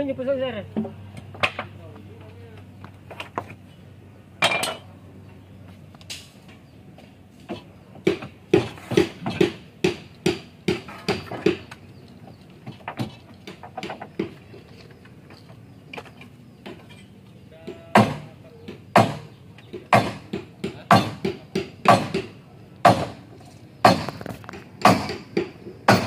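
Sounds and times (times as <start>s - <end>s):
hammer blows ringing: 17.6s - 23.2s, 24.8s - 26.0s.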